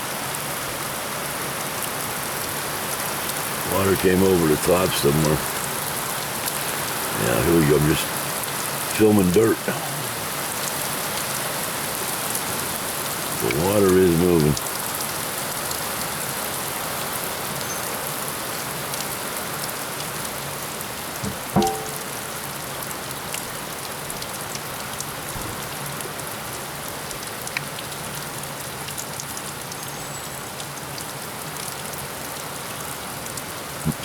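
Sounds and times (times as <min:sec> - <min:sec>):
rain falling: 0:00.0 - 0:34.0
sharp knock: 0:21.2 - 0:22.0.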